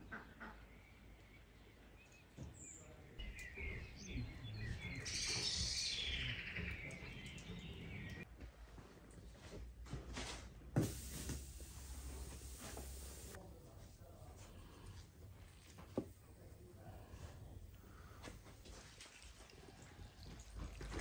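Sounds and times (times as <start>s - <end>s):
small birds chirping and singing: 0.8s - 8.3s.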